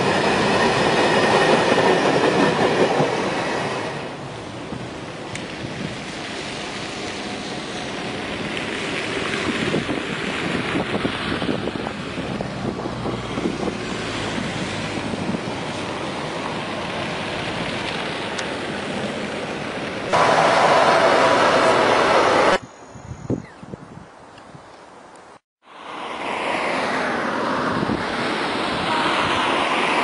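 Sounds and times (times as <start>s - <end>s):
distant freight train rumbling: 0.0s - 22.6s, 25.9s - 30.0s
wind buffeting microphone: 8.2s - 18.9s, 21.8s - 24.8s, 27.6s - 29.7s.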